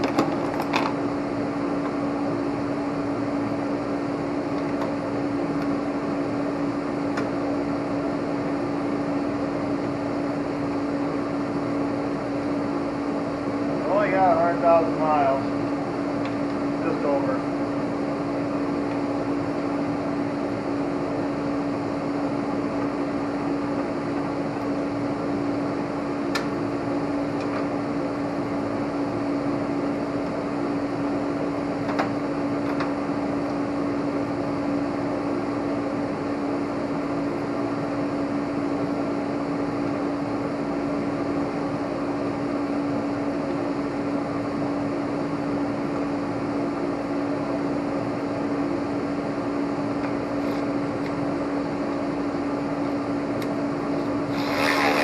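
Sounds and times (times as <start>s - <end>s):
fan humming: 0.0s - 55.0s.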